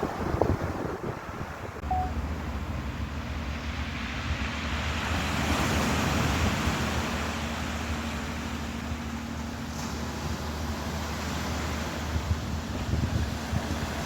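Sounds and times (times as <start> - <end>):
ocean surf washing in: 0.0 - 14.0
wind rumble on microphone: 0.0 - 14.0.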